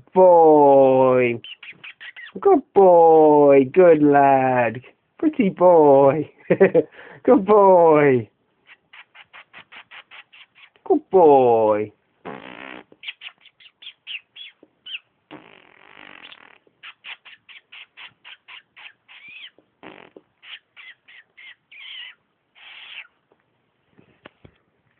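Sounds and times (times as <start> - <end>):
budgerigar chirping and warbling: 1.4 - 2.4, 13.0 - 15.1, 16.2 - 23.2.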